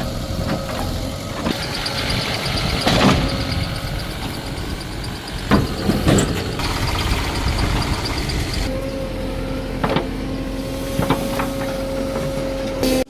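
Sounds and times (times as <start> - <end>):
heavy diesel engine running: 0.0 - 13.0
sharp metal knocks and clanks: 1.5 - 8.7.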